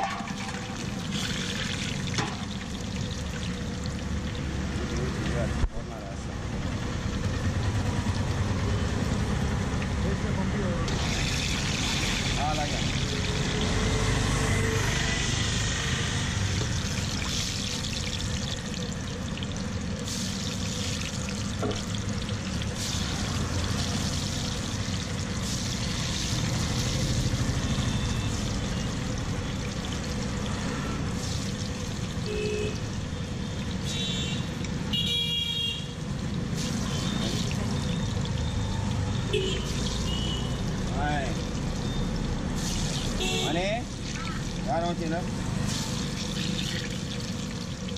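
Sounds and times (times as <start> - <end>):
fritters sizzling in oil: 0.0 - 5.7, 7.2 - 47.9
street traffic rumble: 0.0 - 47.9
vehicle horn honking: 32.3 - 32.8, 33.8 - 36.0, 39.3 - 40.6, 43.2 - 43.6.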